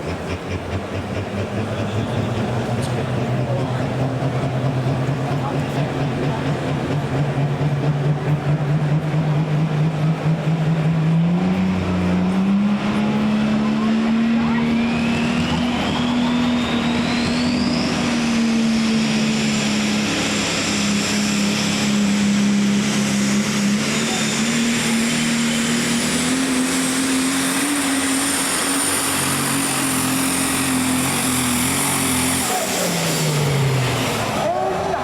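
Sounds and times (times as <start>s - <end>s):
diesel engine at high revs: 0.0s - 35.0s
turbo whistle: 14.4s - 18.6s.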